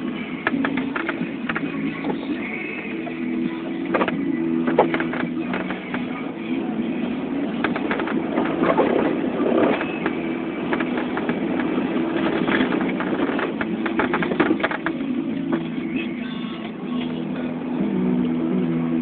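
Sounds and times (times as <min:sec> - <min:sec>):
pickup truck engine droning: 0:00.0 - 0:19.0
snow plow knocks and clatter: 0:07.5 - 0:15.8.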